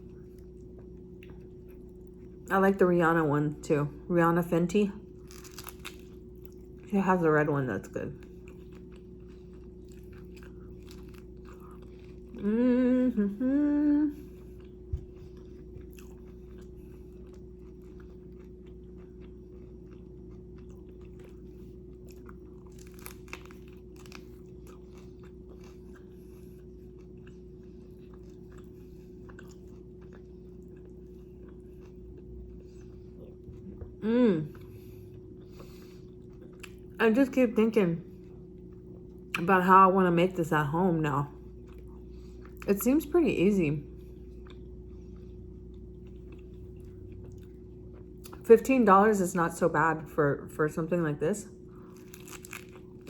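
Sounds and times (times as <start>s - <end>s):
person chewing food: 0.0s - 2.5s, 5.1s - 6.9s, 8.1s - 37.0s, 41.4s - 42.7s, 43.9s - 48.4s, 51.6s - 53.0s
faint steady hum: 0.0s - 53.0s
woman humming: 12.4s - 14.4s, 33.9s - 34.7s.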